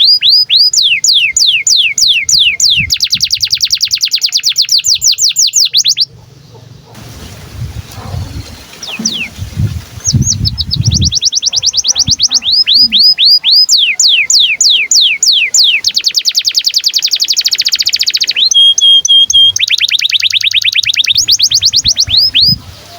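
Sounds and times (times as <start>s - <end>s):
canary singing trills: 0.0s - 7.0s, 7.9s - 22.9s.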